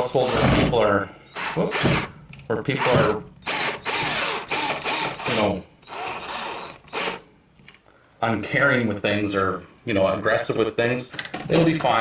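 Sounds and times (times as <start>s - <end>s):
drill-driver driving screws: 1.3s - 2.1s, 2.8s - 7.2s.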